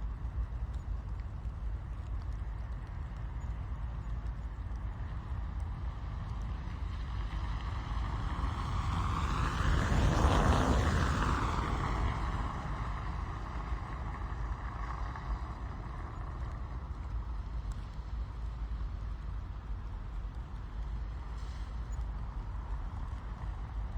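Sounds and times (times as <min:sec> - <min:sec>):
tyres hissing on wet road: 0:07.0 - 0:16.3, 0:21.1 - 0:22.7.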